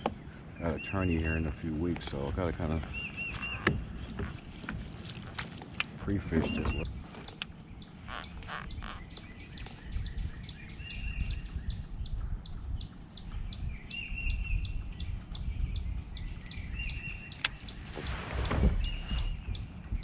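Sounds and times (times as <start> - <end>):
high bird chirps: 2.8 - 4.4, 6.0 - 18.1
sharp click: 17.4 - 17.6.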